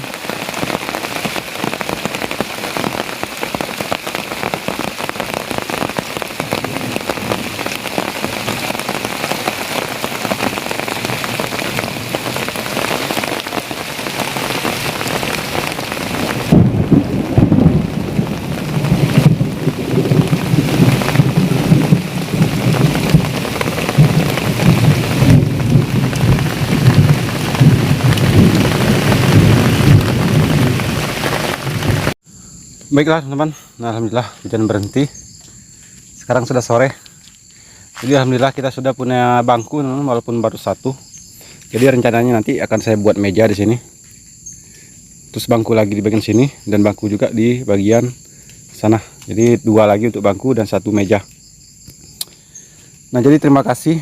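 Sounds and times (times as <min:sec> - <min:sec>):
heavy rain falling: 0:00.0 - 0:32.2, 0:36.3 - 0:43.8, 0:44.7 - 0:51.3, 0:52.8 - 0:54.0
thunder rumbling: 0:00.0 - 0:32.2.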